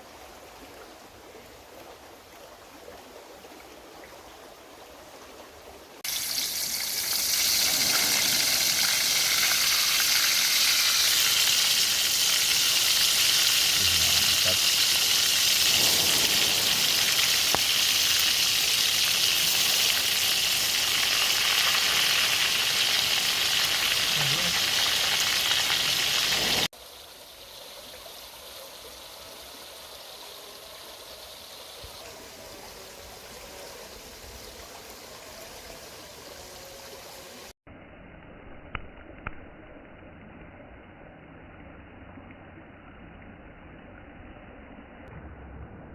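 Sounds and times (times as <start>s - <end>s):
food sizzling in oil: 6.0s - 26.7s.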